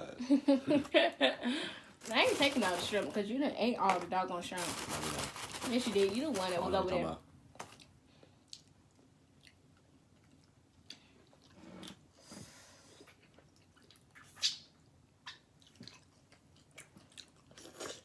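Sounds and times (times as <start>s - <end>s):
people chewing food: 7.6s - 18.0s.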